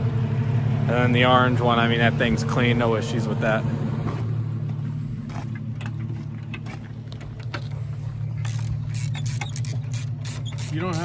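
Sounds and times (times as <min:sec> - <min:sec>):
vehicle engine idling: 0:00.0 - 0:11.0
hand tools clicking and clinking: 0:08.4 - 0:11.0.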